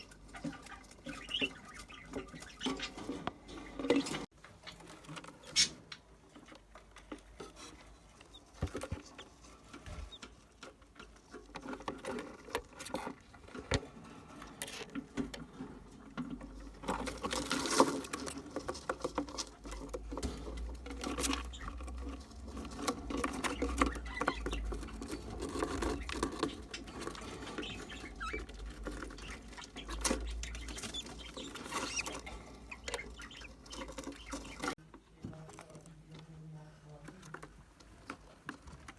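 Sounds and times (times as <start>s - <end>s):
chicks scrabbling in nest: 0.0s - 34.8s
faint chick squeaks: 27.6s - 34.8s.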